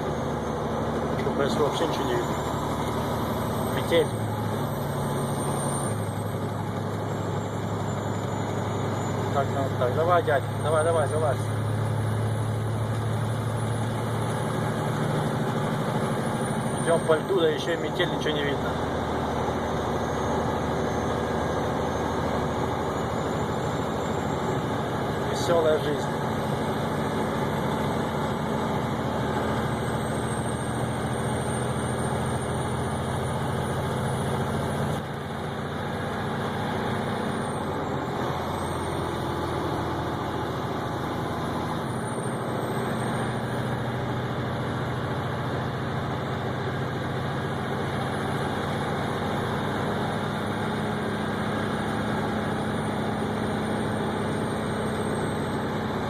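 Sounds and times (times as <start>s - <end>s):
vehicle engine drone and road noise: 0.0s - 56.0s.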